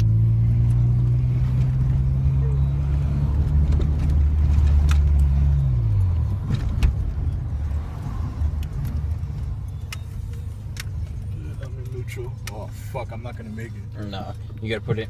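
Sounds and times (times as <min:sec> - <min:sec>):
car engine running: 0:00.0 - 0:15.0
sharp clicks and knocks: 0:03.4 - 0:12.7.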